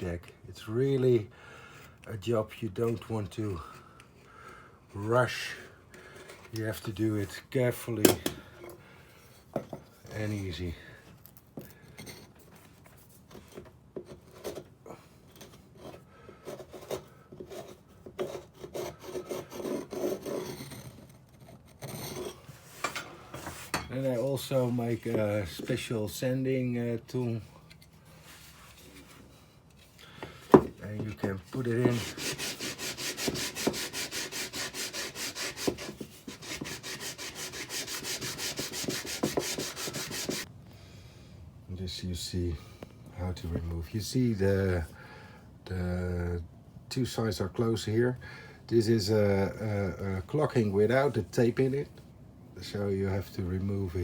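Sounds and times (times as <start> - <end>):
hand tool scraping caulking: 15.3 - 22.9, 30.3 - 40.5.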